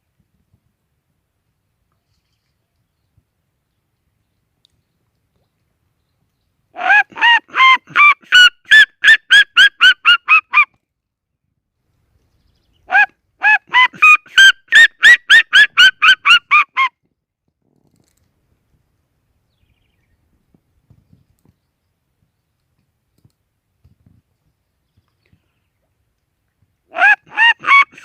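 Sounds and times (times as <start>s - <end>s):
bird yelping calls: 12.7s - 16.9s.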